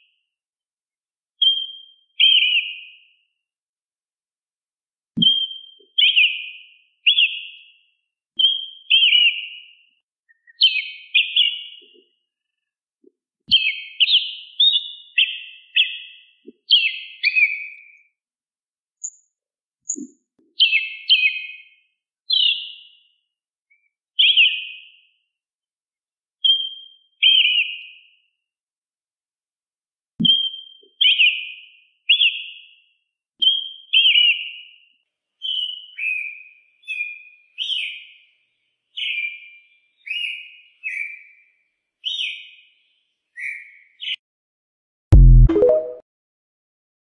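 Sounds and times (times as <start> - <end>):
bird whistling song: 1.4 - 3.0, 5.2 - 7.7, 8.4 - 9.7, 10.3 - 12.0, 13.5 - 18.0, 19.9 - 22.9, 23.7 - 24.8, 26.4 - 28.0, 30.2 - 32.6, 33.4 - 34.7, 35.4 - 38.1, 39.0 - 41.4, 42.0 - 42.6, 43.4 - 44.2.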